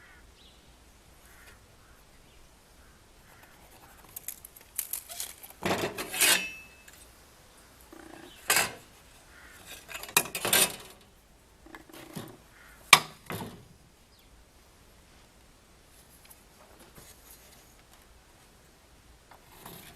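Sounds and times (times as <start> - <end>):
tools and wood clattering: 4.0 - 7.1, 7.9 - 8.9, 9.6 - 11.1, 11.7 - 13.7, 19.3 - 19.9.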